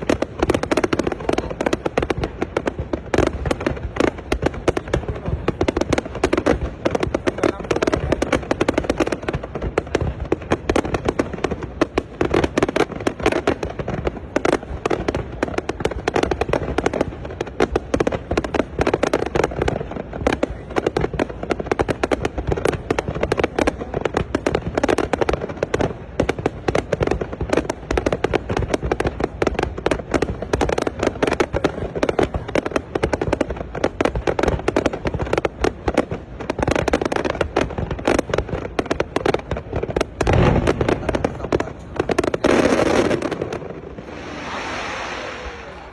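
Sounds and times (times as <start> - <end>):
fireworks bangs and pops: 0.0 - 45.9.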